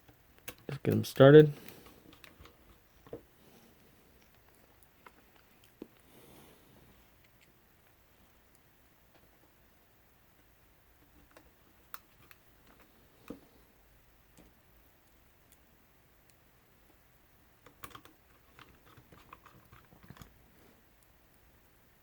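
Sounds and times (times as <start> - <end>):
screwdriver clicking on plastic: 0.4 - 2.6.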